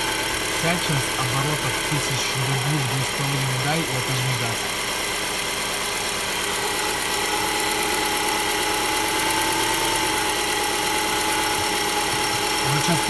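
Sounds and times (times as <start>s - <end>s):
engine running steadily: 0.0s - 13.0s
muffled engine knock: 11.2s - 13.0s.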